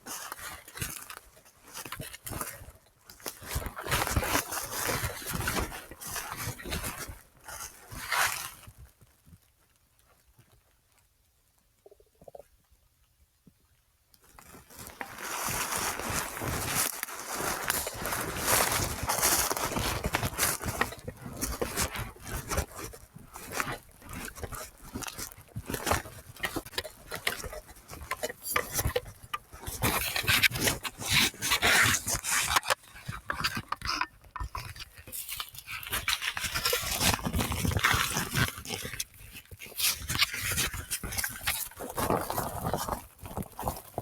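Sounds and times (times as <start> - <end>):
footsteps crunching through leaf litter: 14.7 - 40.4.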